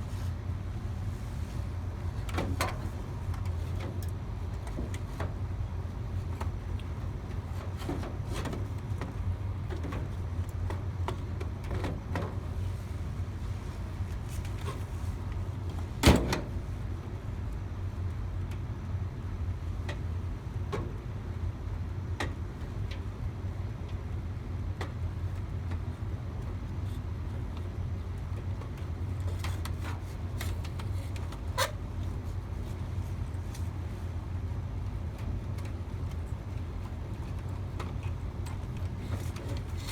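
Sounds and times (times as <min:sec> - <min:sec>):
clicks and knocks of handling parts: 0:35.2 - 0:39.9.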